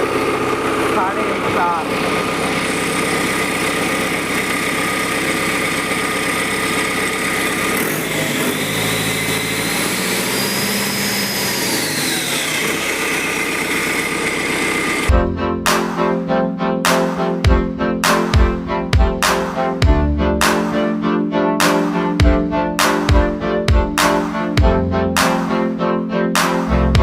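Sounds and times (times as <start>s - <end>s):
diesel engine running: 0.0s - 15.7s.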